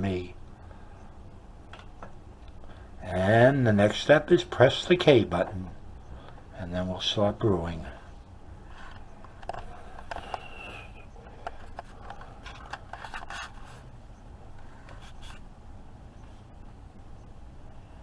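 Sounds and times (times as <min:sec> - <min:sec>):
light clicks and scrapes: 0:08.7 - 0:13.9, 0:14.6 - 0:15.4.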